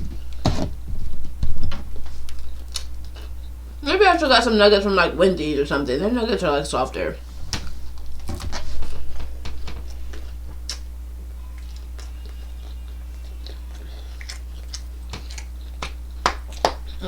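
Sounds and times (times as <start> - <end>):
steady low hum: 0.0 - 17.0
wet chewing mouth sounds: 7.6 - 17.0.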